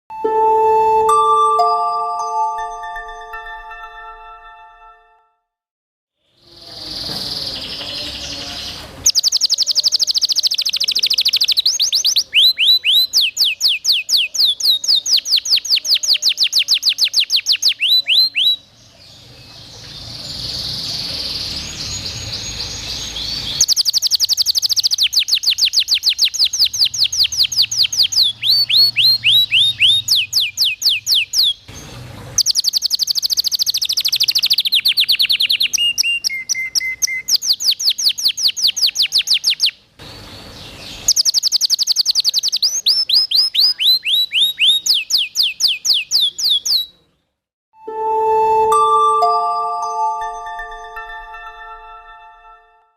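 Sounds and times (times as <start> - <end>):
canary singing trills: 6.4 - 18.8, 20.0 - 31.7, 32.4 - 47.0.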